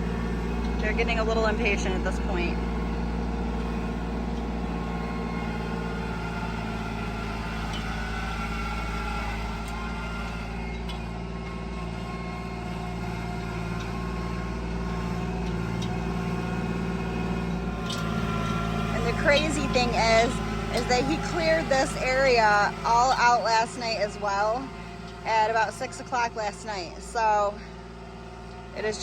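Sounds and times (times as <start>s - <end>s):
tractor engine running: 0.0s - 29.0s.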